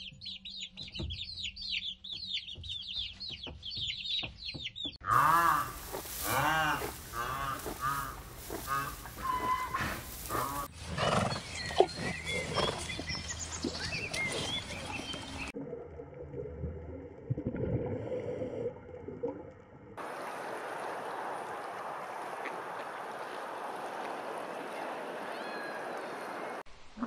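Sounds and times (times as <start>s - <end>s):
baby chicks peeping: 0.0s - 5.0s
rhinoceros squealing calls: 5.1s - 12.7s.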